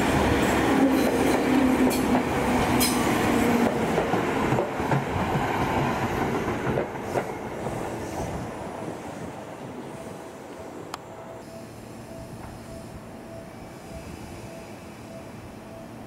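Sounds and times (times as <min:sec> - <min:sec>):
train wheels clicking over joints: 0:00.8 - 0:08.4.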